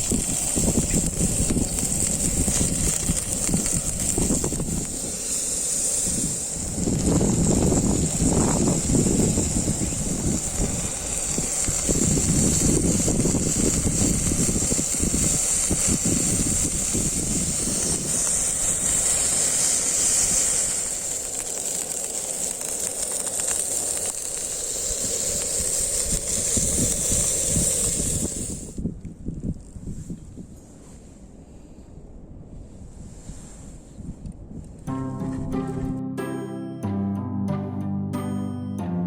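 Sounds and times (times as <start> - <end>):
wind rumble on microphone: 0.0 - 19.4, 24.9 - 34.9
gas burner hissing: 0.0 - 28.9.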